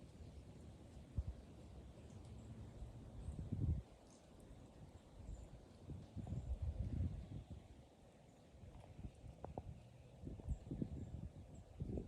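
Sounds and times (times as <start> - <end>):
wind buffeting microphone: 3.2 - 4.0, 5.2 - 7.8, 8.6 - 12.0.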